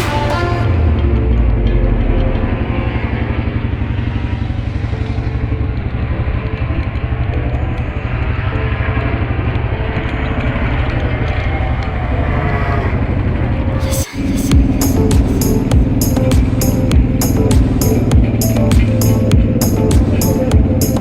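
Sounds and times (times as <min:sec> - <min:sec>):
motorcycle engine running: 0:14.4 - 0:21.0.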